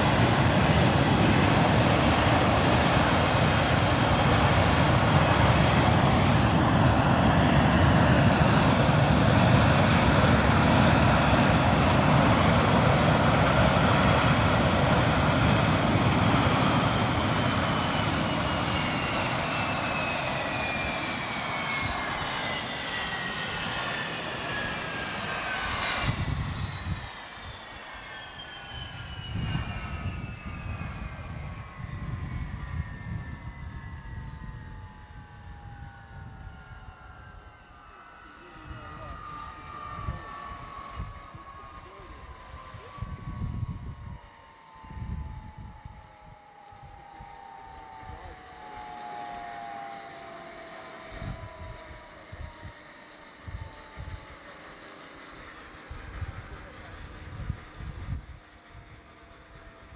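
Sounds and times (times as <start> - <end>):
deep engine rumble: 0.0 - 27.6
jet engine roar: 0.0 - 59.9
jet engine whine winding down: 0.0 - 59.9.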